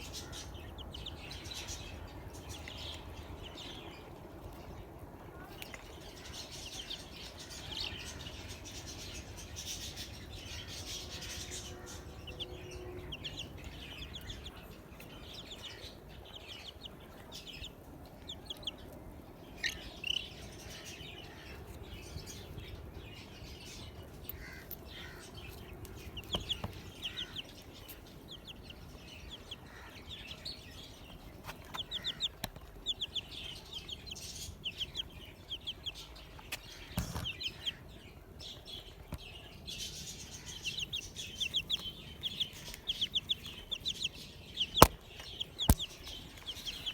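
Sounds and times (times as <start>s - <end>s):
chicks peeping: 0.0s - 46.9s
sharp taps: 44.7s - 46.9s.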